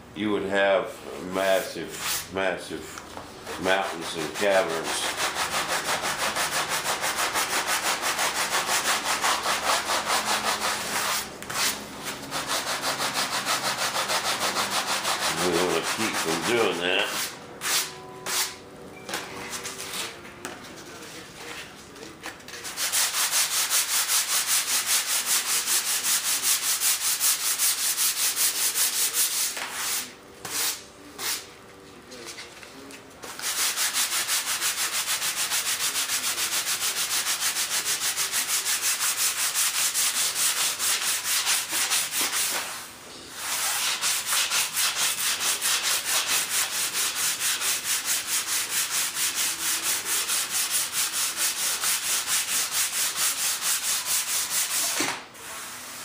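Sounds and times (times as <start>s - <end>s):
sandpaper rasping: 3.5s - 18.5s, 22.6s - 31.4s, 33.3s - 42.7s, 43.4s - 55.0s.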